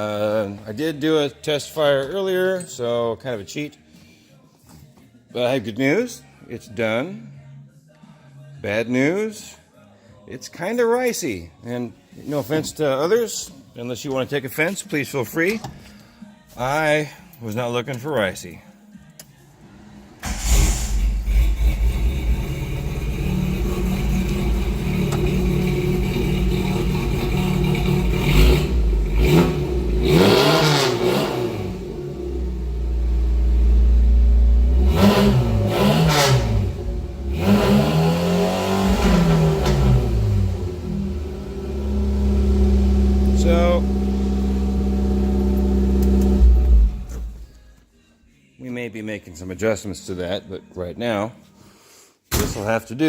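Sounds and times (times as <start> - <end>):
engine starting and revving: 20.2 - 33.8, 34.6 - 47.5.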